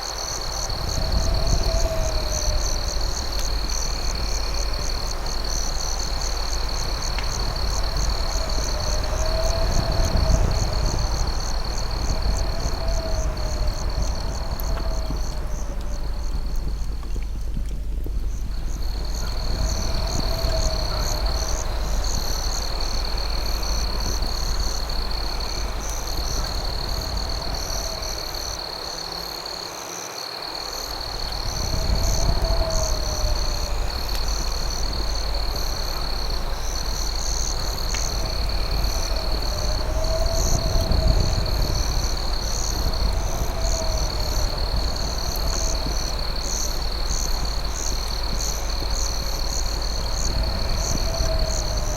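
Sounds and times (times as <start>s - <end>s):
crickets trilling: 0.0s - 51.9s.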